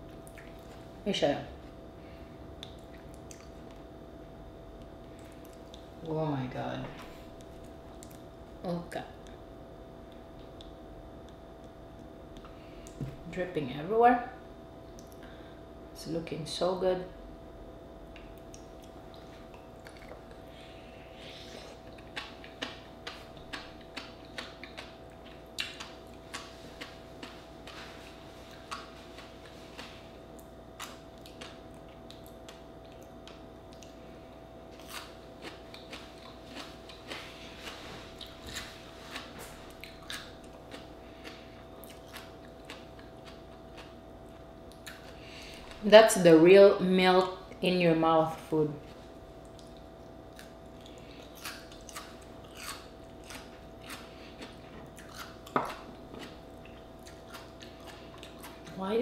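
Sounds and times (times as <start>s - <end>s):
faint steady hum: 0.0s - 59.0s
wet chewing mouth sounds: 2.6s - 3.9s, 5.0s - 6.1s, 7.0s - 8.3s, 18.0s - 34.0s, 34.7s - 45.8s, 49.4s - 58.8s.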